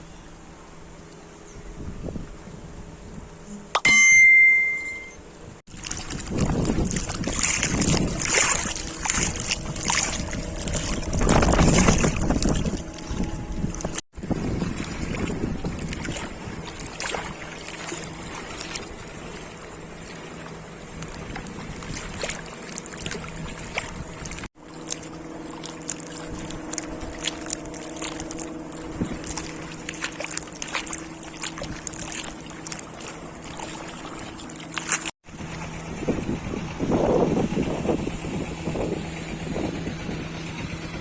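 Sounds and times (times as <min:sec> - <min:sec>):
engine humming: 0:14.9 - 0:41.0.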